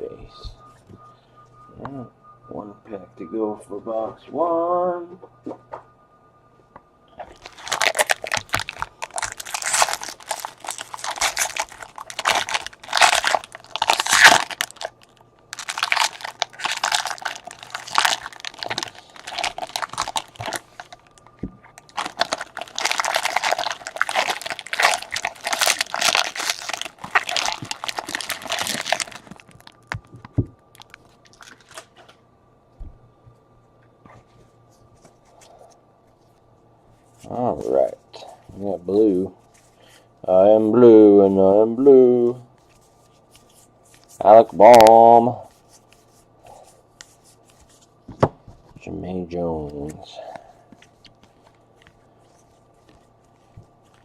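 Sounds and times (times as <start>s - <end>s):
foil wrapper crinkling and tearing: 7.3s - 32.1s, 50.7s - 54.0s.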